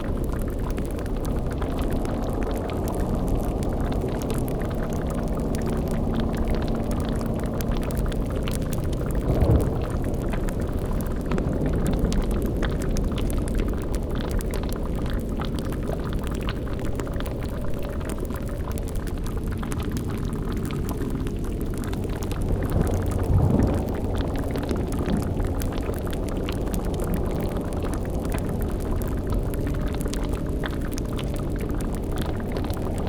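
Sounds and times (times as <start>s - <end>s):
cauldron bubbling: 0.1s - 33.0s
low rumbling drone: 0.1s - 33.0s
fine crackles: 8.4s - 12.3s, 21.4s - 33.0s.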